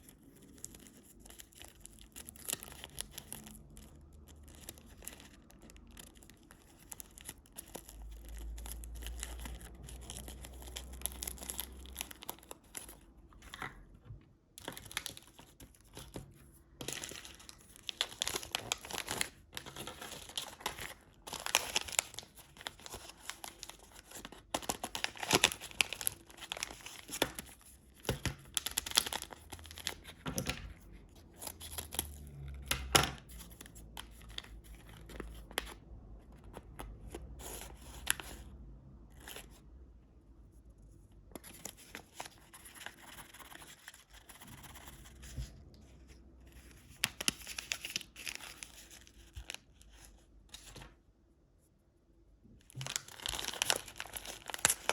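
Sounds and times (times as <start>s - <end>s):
candy wrappers crinkling: 0.0s - 13.9s, 14.5s - 35.8s, 46.5s - 50.9s, 52.6s - 54.9s.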